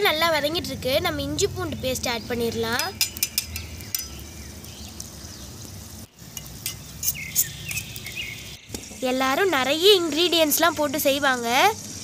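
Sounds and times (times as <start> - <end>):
prawns sizzling in a pan: 0.1 - 12.0
metal spoon clicking against pan: 2.7 - 4.2.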